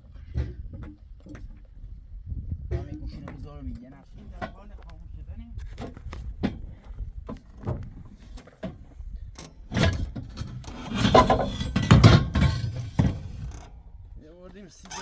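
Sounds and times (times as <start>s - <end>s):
car door rattling and scraping: 9.7s - 13.7s.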